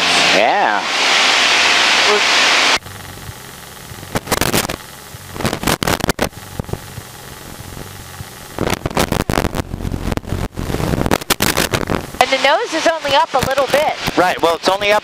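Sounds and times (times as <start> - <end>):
low steady drone: 0.0 - 14.6
crackles and clicks: 2.8 - 12.2, 13.0 - 14.2.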